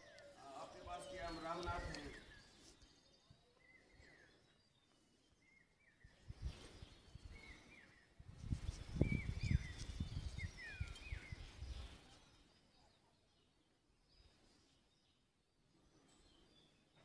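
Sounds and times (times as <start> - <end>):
wind buffeting microphone: 8.2 - 12.0.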